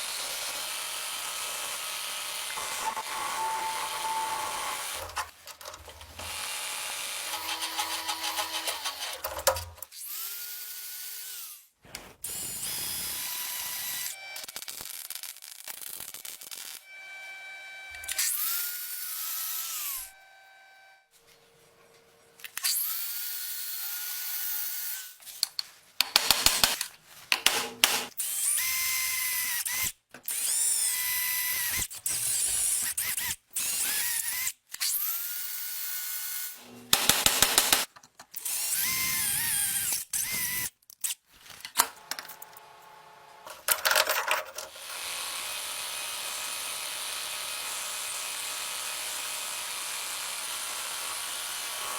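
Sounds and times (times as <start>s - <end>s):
power tool motor whine: 0.0s - 9.6s, 38.5s - 40.7s.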